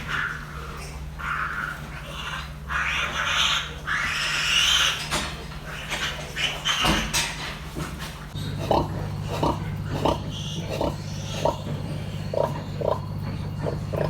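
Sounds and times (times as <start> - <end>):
piglets squealing: 0.0 - 7.2, 8.4 - 14.0
steady low hum: 8.2 - 14.0.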